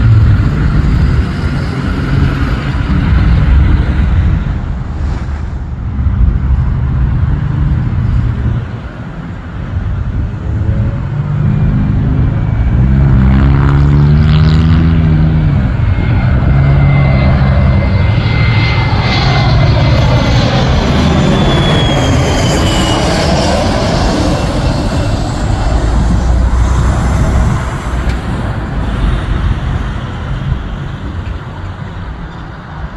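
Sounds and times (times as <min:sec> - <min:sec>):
jet passing overhead: 0:00.0 - 0:32.9
turbine whine: 0:00.0 - 0:32.9.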